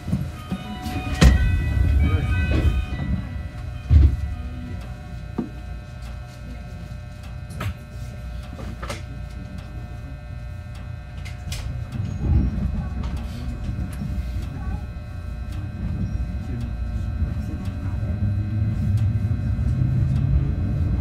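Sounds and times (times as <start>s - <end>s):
electrical hum: 0.0s - 21.0s
train low rumble: 0.0s - 21.0s
heavy low thump: 0.1s - 6.3s.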